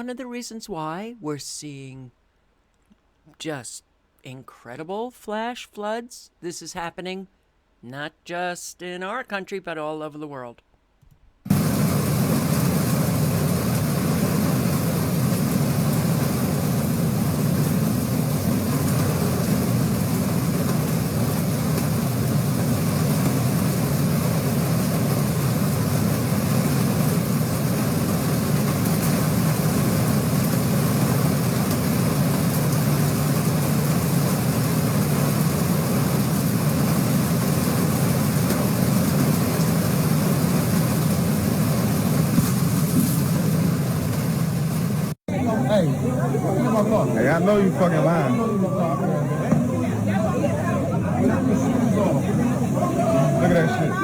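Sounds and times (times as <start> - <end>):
heavy rain: 11.5 - 54.0
running floodwater: 11.5 - 54.0.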